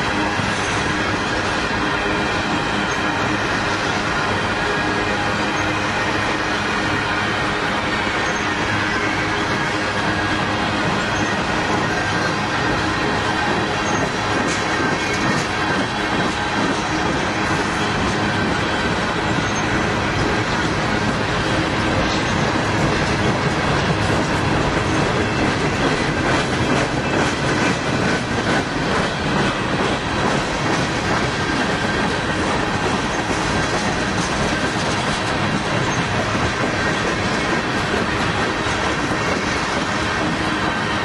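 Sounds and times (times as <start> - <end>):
train wheels clacking on rails: 0.0 - 41.0
high wheel squeal: 0.1 - 29.5, 30.4 - 41.0.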